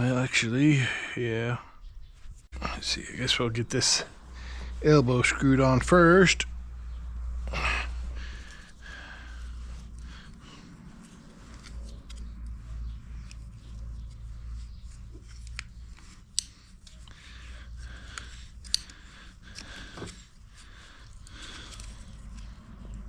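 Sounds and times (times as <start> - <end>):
low steady hum: 0.0 - 23.0
metal parts clicking: 15.2 - 17.1, 18.1 - 20.4.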